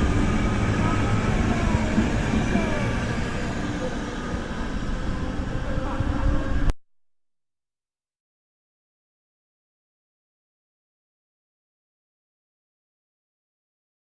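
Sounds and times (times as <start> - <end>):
train rumble: 0.0 - 6.7.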